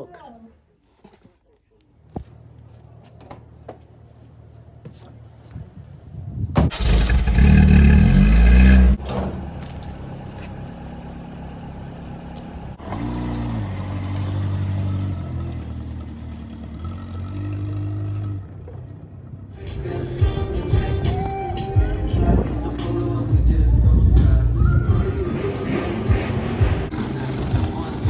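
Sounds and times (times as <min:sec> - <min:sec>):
car engine revving: 0:06.7 - 0:19.6, 0:25.4 - 0:28.0.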